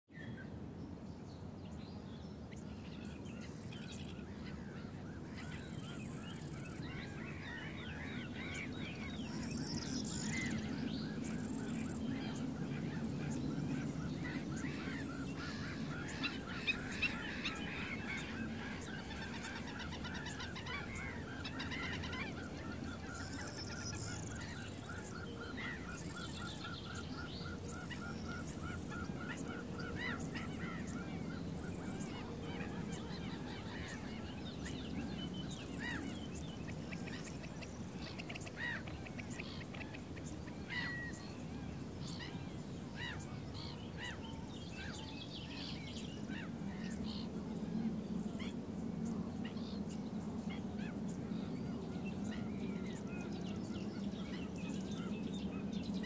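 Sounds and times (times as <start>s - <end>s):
birds chirping and calling: 3.4s - 56.0s.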